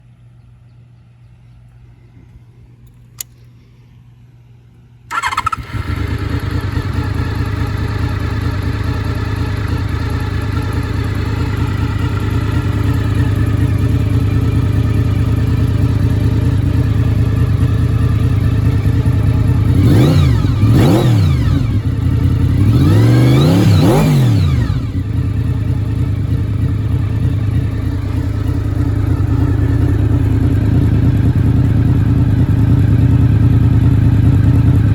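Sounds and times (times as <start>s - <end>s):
click: 2.8s - 3.5s
motorcycle engine idling and revving: 5.1s - 34.9s.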